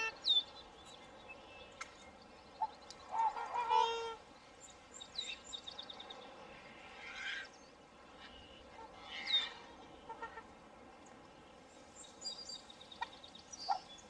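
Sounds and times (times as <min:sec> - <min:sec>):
small birds chirping: 0:00.0 - 0:03.4, 0:04.2 - 0:10.2, 0:11.0 - 0:14.0
swan honking: 0:02.6 - 0:04.2, 0:08.2 - 0:10.6
rough bird calls: 0:05.2 - 0:10.4.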